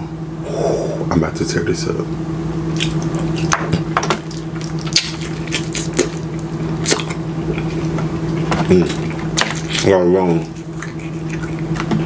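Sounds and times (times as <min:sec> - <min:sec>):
steady low hum: 0:00.0 - 0:12.0
wet chewing and lip-smacking: 0:02.7 - 0:03.6, 0:04.2 - 0:12.0.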